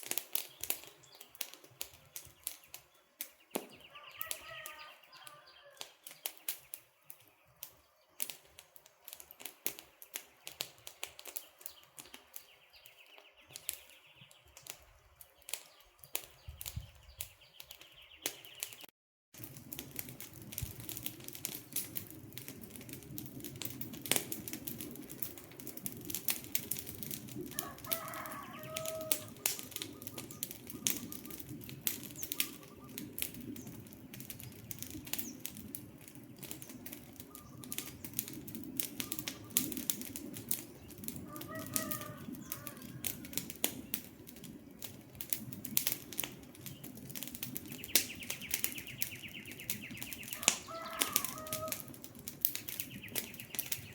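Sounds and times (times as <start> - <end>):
wood fire crackling and popping: 0.0 - 53.9
bird calling: 3.5 - 6.0, 27.6 - 31.6, 32.2 - 33.1, 37.2 - 38.1, 47.7 - 51.9.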